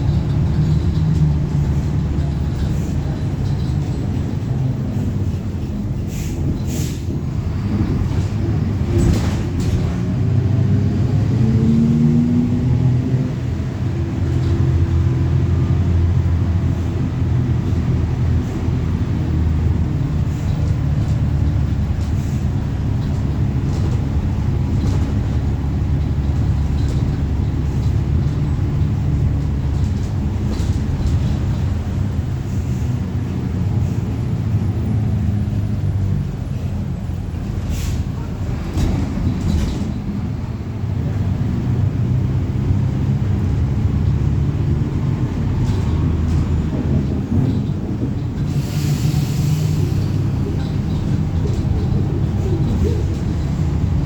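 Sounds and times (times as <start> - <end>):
sharp rattles and knocks: 0.0 - 10.0, 18.5 - 33.2, 50.1 - 54.0
bus diesel engine accelerating: 0.0 - 54.0.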